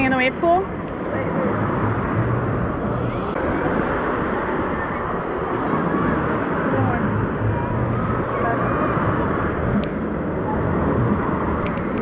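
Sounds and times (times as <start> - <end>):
wave pool water rushing: 0.0 - 12.0
distant crowd voices and shouts: 0.9 - 12.0.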